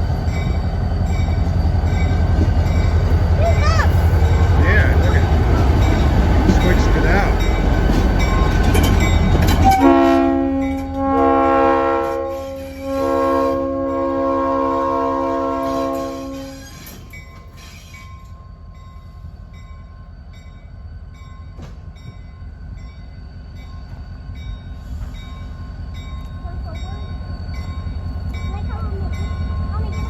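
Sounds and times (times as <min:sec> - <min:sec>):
locomotive rumble: 0:00.0 - 0:30.0
locomotive air horn: 0:09.6 - 0:16.8.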